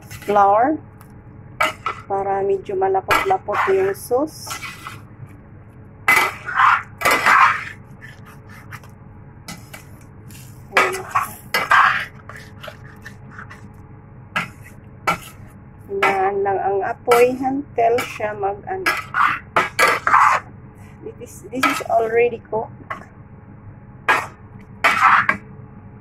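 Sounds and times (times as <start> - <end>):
spoon scraping curry in a pot: 3.2 - 5.0, 9.5 - 13.8, 18.9 - 20.4, 24.1 - 25.4.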